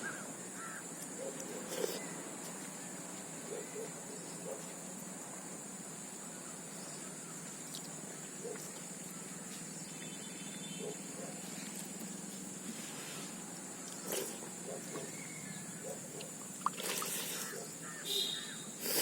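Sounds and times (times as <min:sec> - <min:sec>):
high-pitched hiss: 0:16.6 - 0:19.0.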